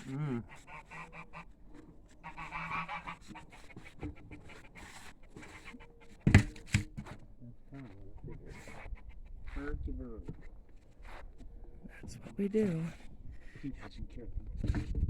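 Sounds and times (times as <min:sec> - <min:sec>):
harsh honking animal call: 0:02.2 - 0:03.3.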